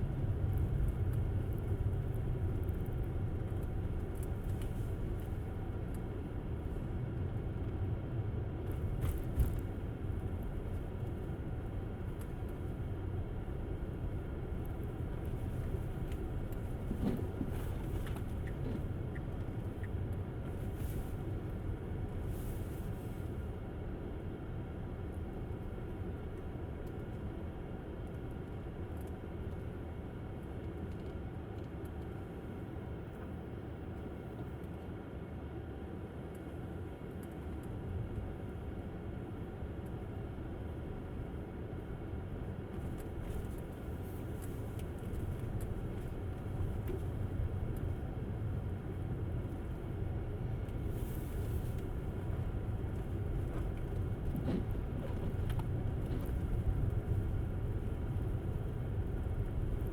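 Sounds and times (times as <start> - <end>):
tyres rumbling on road: 8.6 - 20.6, 42.1 - 59.9.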